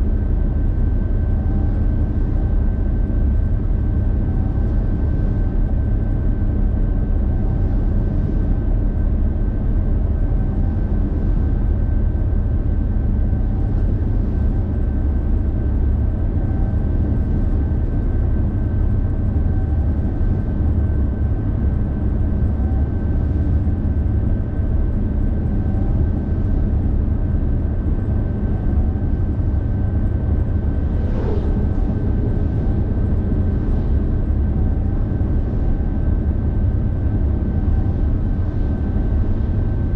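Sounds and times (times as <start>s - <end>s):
thin high whine: 25.6s - 39.9s
car road noise rumble: 28.4s - 36.0s
faint swish: 30.4s - 35.0s.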